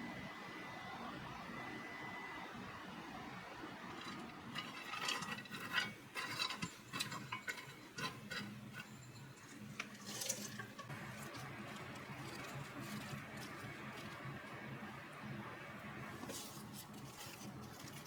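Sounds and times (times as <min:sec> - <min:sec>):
kitchen items clicking and clattering: 0:04.0 - 0:14.2.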